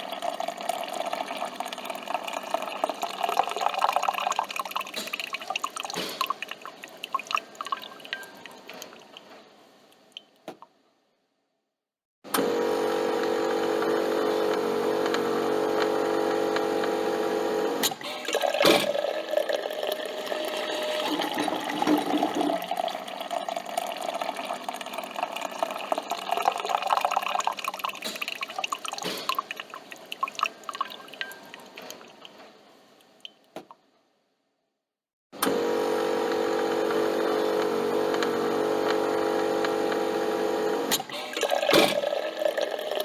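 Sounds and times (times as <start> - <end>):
coffee machine pump humming: 0.0 - 5.8, 12.4 - 29.0, 35.4 - 43.0
liquid gurgling and dripping: 0.0 - 9.3, 17.8 - 32.4.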